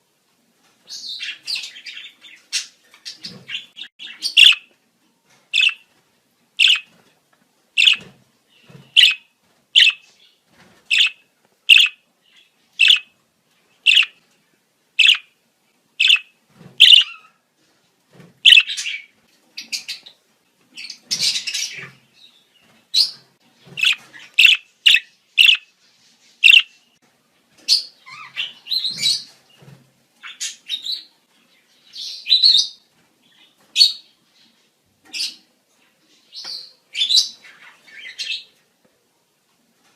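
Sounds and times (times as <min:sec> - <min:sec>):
budgerigars chirping: 0:01.0 - 0:04.7, 0:05.6 - 0:05.8, 0:06.6 - 0:06.9, 0:07.8 - 0:08.1, 0:08.8 - 0:10.1, 0:10.9 - 0:12.0, 0:12.8 - 0:13.1, 0:13.8 - 0:14.2, 0:15.0 - 0:15.3, 0:16.0 - 0:17.3, 0:18.5 - 0:20.1, 0:23.8 - 0:25.7, 0:26.4 - 0:26.7, 0:27.7 - 0:29.3.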